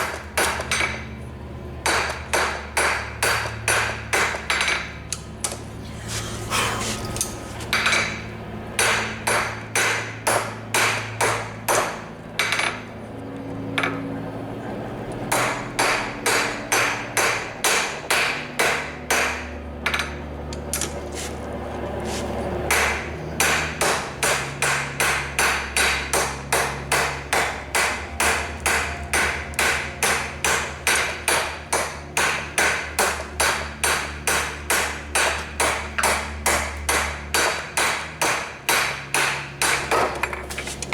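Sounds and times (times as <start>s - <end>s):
hammer striking steel on anvil: 1.8s - 5.6s, 6.2s - 12.8s, 15.3s - 20.9s, 22.7s - 40.6s.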